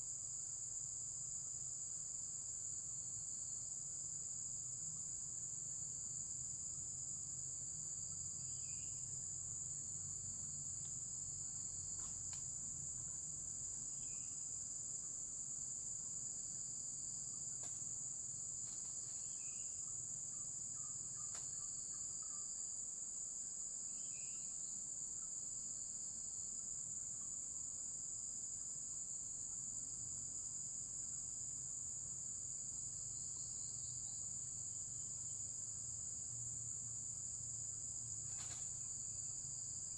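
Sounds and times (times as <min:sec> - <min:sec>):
high-pitched insect chorus: 0:00.0 - 0:39.9
short insect chirps: 0:08.1 - 0:09.9, 0:10.7 - 0:15.2, 0:16.4 - 0:23.2, 0:23.9 - 0:27.7, 0:36.7 - 0:39.9.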